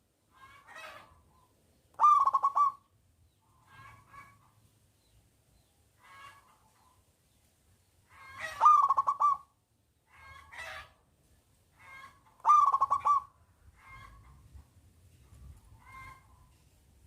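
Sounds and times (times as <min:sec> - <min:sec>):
dove cooing: 0:02.0 - 0:02.9, 0:08.2 - 0:09.5, 0:12.4 - 0:13.3.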